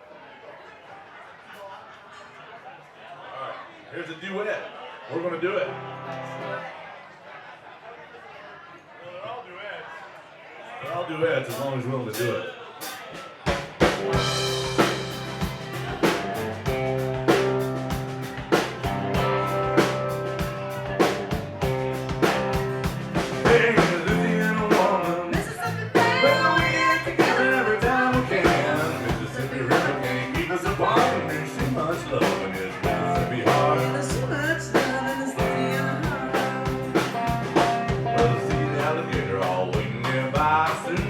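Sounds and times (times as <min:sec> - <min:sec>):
live country band playing: 0:05.6 - 0:06.7, 0:13.7 - 0:41.0
person singing: 0:23.1 - 0:41.0.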